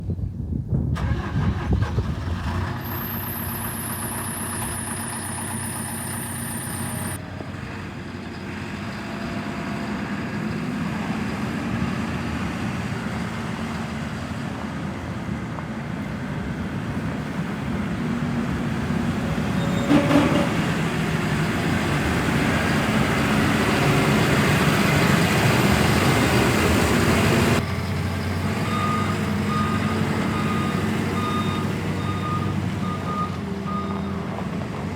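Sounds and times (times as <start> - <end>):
wheel loader diesel engine revving: 1.0 - 15.3, 16.0 - 34.9.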